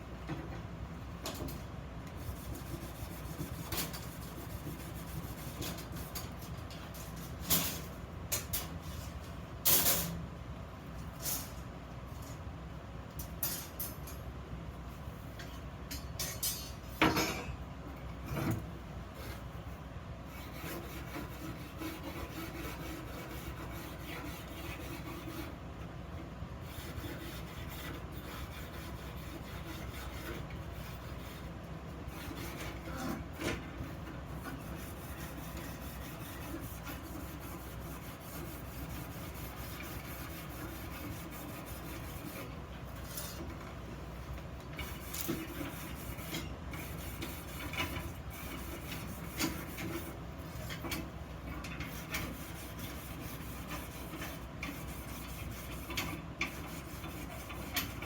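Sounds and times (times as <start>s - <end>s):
tool scraping on metal: 20.3s - 25.6s, 26.6s - 43.6s, 44.8s - 58.0s.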